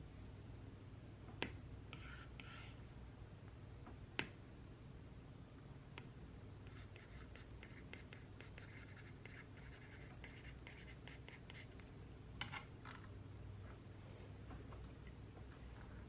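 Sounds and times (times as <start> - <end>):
pen scratching on paper: 1.9 - 2.8, 6.6 - 11.8.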